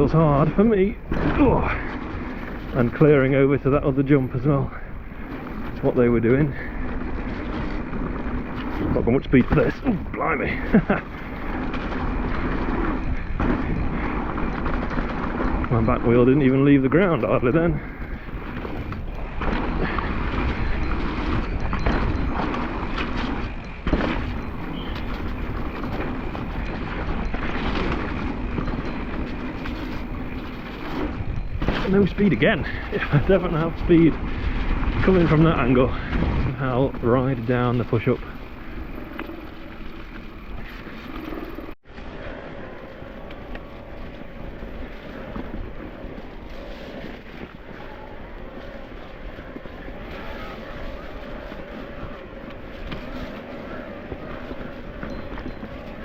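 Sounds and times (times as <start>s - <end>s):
bike knocks and rattles: 0.0s - 41.8s
wind rumble on microphone: 0.0s - 56.0s.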